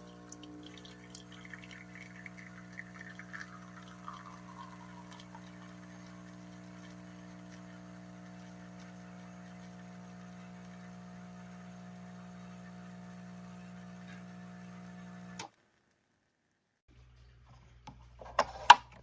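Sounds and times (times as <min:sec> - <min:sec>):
small drips: 0:00.0 - 0:09.9
liquid trickling into a cup: 0:00.0 - 0:10.8
electrical hum: 0:00.0 - 0:15.4.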